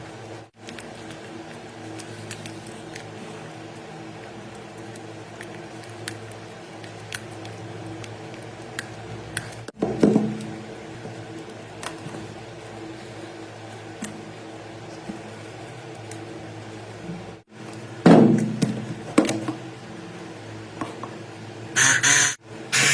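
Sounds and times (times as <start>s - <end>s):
electric motor humming: 21.4s - 22.9s.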